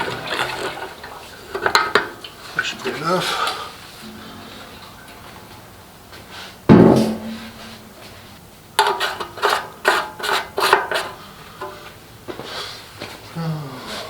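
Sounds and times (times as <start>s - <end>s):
metallic clunk: 4.0s - 5.9s, 6.7s - 8.2s.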